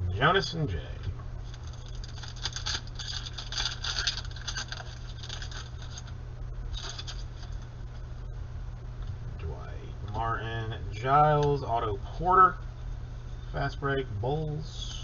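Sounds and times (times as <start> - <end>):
trading cards rustling: 1.4 - 6.1, 6.7 - 7.7.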